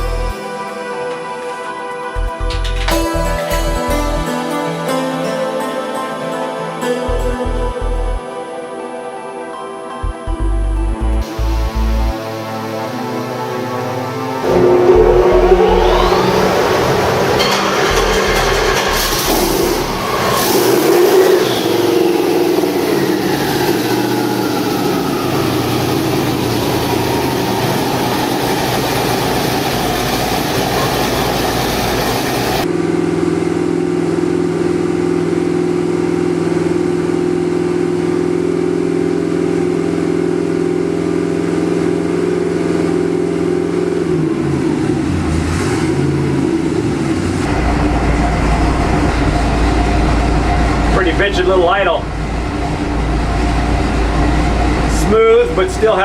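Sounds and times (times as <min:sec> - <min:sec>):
high whine: 0:11.0 - 0:45.2, 0:47.4 - 0:56.0
engine idling: 0:47.0 - 0:56.0.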